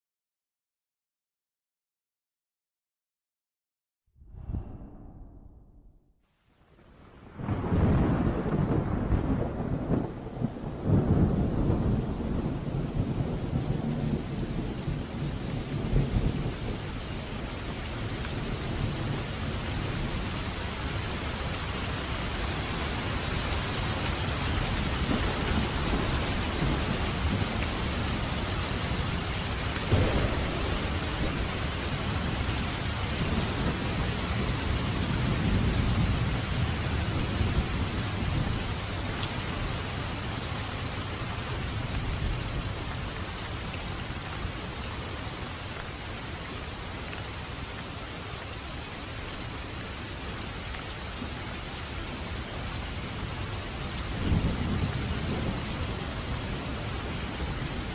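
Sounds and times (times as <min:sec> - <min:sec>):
low rolling thunder: 0:04.2 - 0:06.0, 0:07.2 - 0:39.1, 0:53.1 - 0:57.9
sharp thunderclap: 0:04.2 - 0:06.0, 0:07.4 - 0:16.8, 0:25.0 - 0:27.8, 0:29.8 - 0:36.4
heavy rain on a roof: 0:06.6 - 0:57.9.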